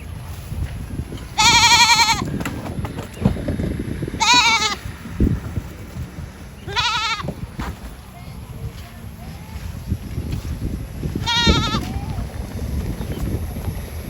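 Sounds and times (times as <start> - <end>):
low rumbling noise: 0.0 - 14.0
goat or sheep bleating: 1.3 - 2.3, 4.1 - 4.9, 6.6 - 7.3, 11.1 - 12.2.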